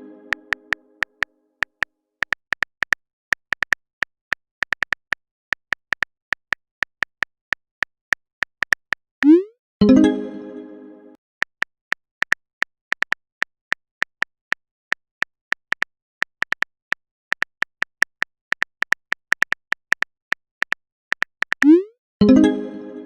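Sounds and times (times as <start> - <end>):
phone keyboard typing clicks: 12.2 - 21.8.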